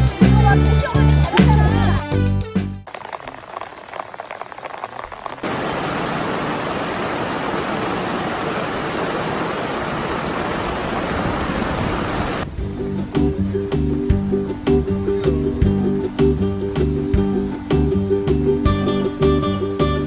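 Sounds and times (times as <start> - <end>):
mountain stream rushing: 2.9 - 20.0.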